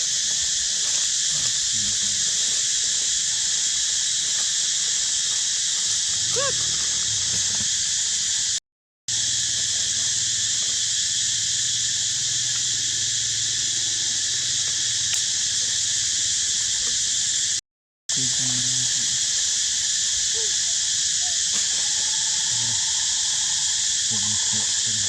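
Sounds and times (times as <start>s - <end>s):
cicada chorus drone: 0.0s - 25.0s
monkey squeal: 6.2s - 7.6s.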